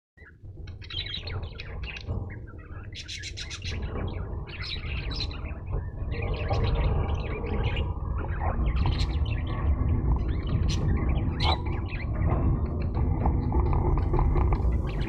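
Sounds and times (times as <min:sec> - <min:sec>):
budgerigars chirping: 0:00.2 - 0:12.4, 0:14.1 - 0:15.0
steady low rumble: 0:03.7 - 0:15.0.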